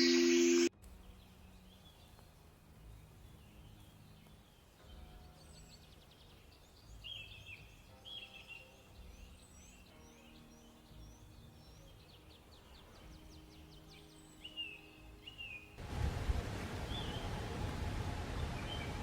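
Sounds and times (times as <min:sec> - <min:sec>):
small birds chirping: 0:00.0 - 0:15.8, 0:16.8 - 0:17.4.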